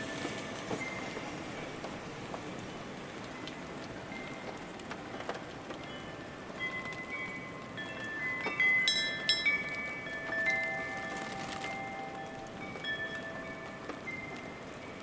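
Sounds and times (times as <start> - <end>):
rain falling: 0.0 - 15.0
wind chimes ringing: 5.8 - 15.0.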